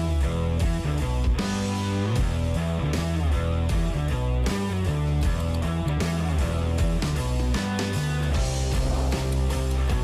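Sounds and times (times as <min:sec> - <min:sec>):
rock music with guitar: 0:00.0 - 0:10.0.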